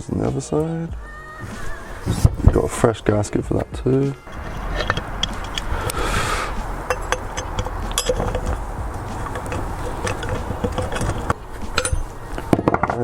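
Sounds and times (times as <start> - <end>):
metallic clicks of bolts and tool: 4.3 - 6.0, 6.8 - 12.1.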